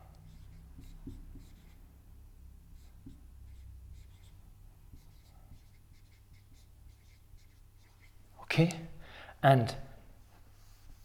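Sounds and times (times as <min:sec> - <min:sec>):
low room hum: 0:00.0 - 0:11.0
pen scratching on paper: 0:00.3 - 0:01.8, 0:02.8 - 0:08.2.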